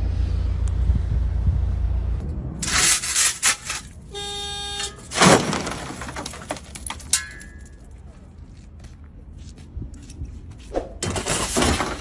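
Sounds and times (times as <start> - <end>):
road traffic rumble: 0.0 - 12.0
vehicle horn: 4.1 - 5.1.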